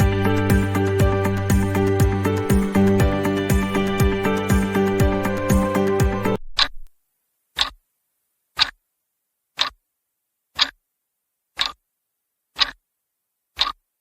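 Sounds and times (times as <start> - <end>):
background music: 0.0 - 6.4
clock ticking: 7.6 - 7.8, 8.6 - 8.8, 9.6 - 9.8, 10.6 - 10.8, 11.6 - 11.8, 12.6 - 12.8, 13.6 - 13.8.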